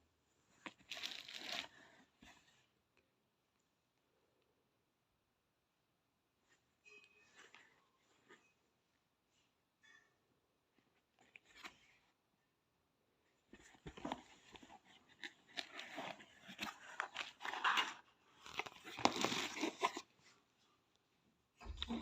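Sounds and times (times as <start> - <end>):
crinkling and tearing handling noise: 0.6 - 2.6, 13.5 - 20.4.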